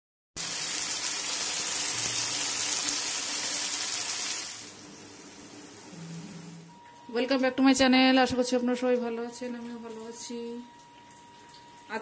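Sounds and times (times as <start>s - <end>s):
curry sizzling in a wok: 0.4s - 6.6s.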